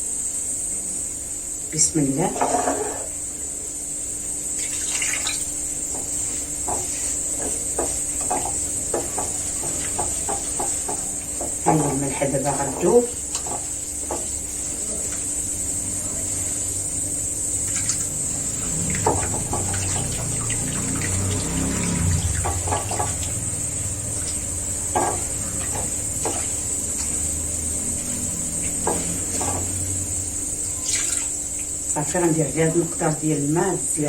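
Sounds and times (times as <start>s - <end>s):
water pouring onto salt: 4.6s - 5.5s.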